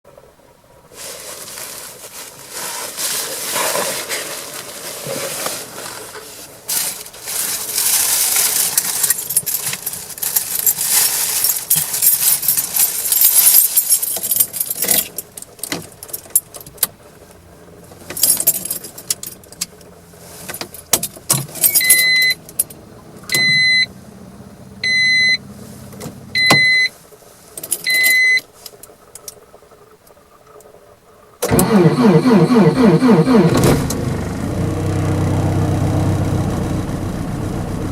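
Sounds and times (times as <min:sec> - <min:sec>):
rustling and scraping: 0:00.9 - 0:22.0
keys jangling: 0:08.4 - 0:16.6, 0:18.1 - 0:19.7.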